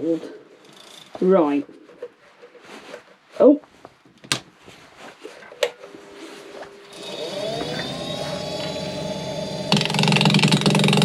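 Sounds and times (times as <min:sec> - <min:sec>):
wood lathe motor whine: 0:05.9 - 0:11.0.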